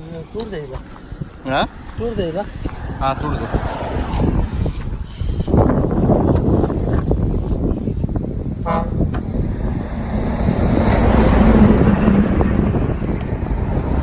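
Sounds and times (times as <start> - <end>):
short car horn toot: 8.6 - 9.0.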